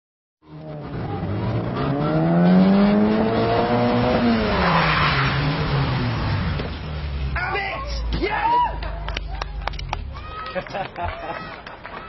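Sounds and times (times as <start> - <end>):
car engine revving: 0.4 - 7.4.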